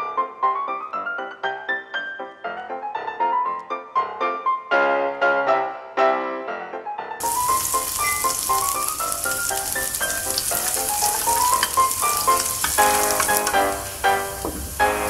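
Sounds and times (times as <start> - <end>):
piano background music: 0.0 - 15.0
onion sizzling in oil: 7.2 - 15.0.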